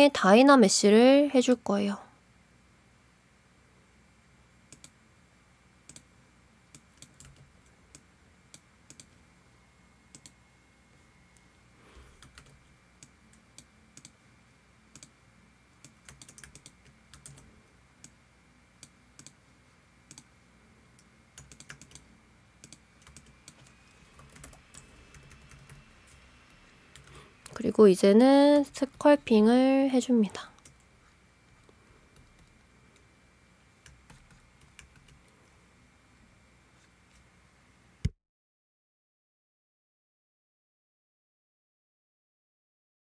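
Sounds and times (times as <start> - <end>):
keyboard and mouse clicks: 4.7 - 5.0, 5.9 - 6.1, 6.7 - 9.2, 14.9 - 15.1, 15.8 - 18.2, 18.8 - 19.4, 21.4 - 26.2.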